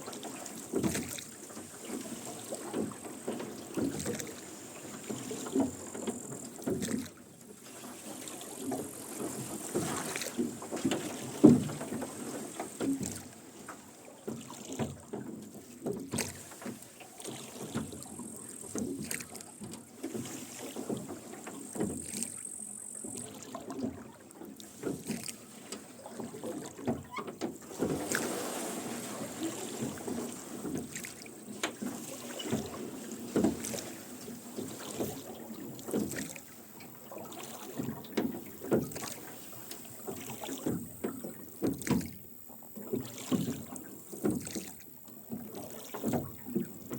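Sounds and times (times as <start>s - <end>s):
oars splashing in water: 0.0s - 46.9s
oarlocks creaking and knocking: 26.6s - 28.0s.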